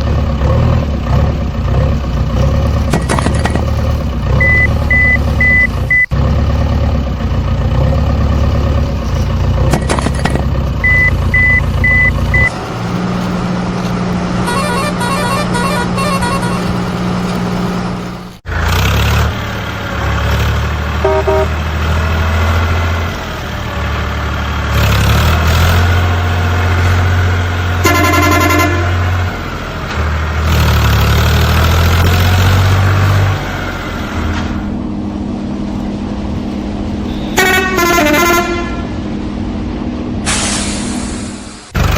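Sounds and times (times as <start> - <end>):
vehicle engines running: 0.0 - 41.9
horn honks: 13.6 - 18.1, 21.0 - 21.8, 27.8 - 29.3, 36.9 - 39.0.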